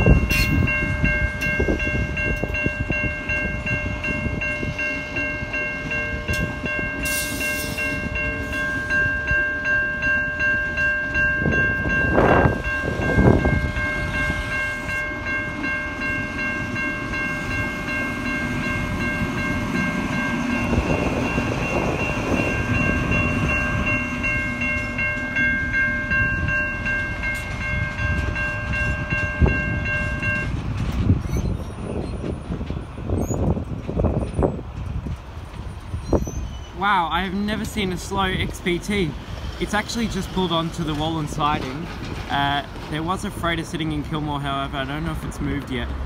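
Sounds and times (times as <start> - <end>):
level crossing bells ringing: 0.0 - 30.6
train rolling past with rumble: 0.0 - 46.0
train wheel clunks: 40.2 - 43.2.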